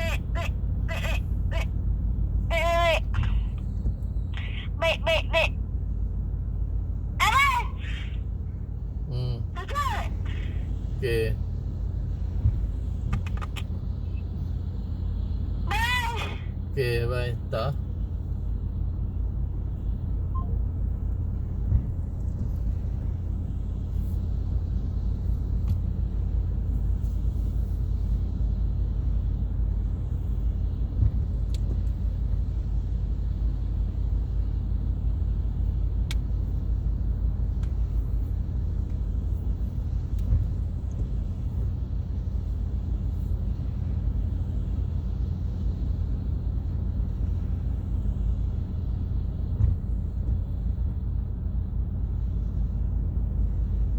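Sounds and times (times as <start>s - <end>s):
car cabin road rumble: 0.0s - 53.9s
faint clicks and bumps: 12.3s - 13.8s.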